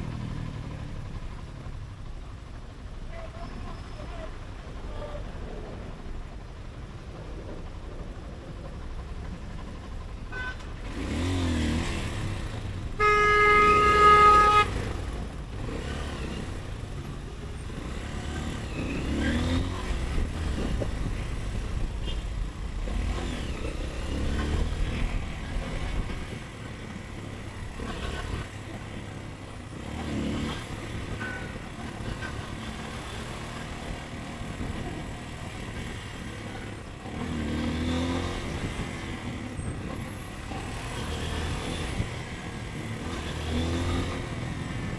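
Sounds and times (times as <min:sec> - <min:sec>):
city traffic and road noise: 0:00.0 - 0:44.9
motorcycle engine accelerating: 0:07.2 - 0:44.9
vehicle horn: 0:10.3 - 0:11.3, 0:13.0 - 0:15.0, 0:22.0 - 0:22.4, 0:31.1 - 0:32.4.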